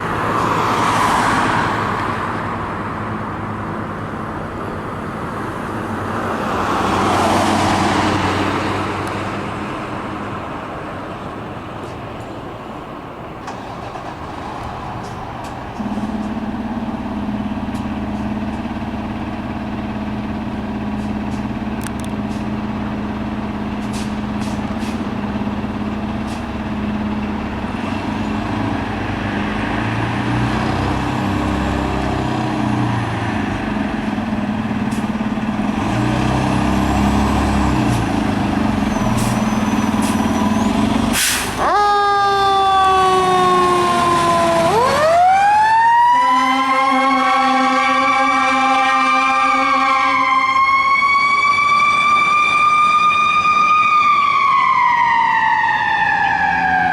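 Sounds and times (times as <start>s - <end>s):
diesel engine running: 1.7s - 54.2s
air brake hiss: 41.1s - 41.6s
siren wailing: 41.6s - 56.9s.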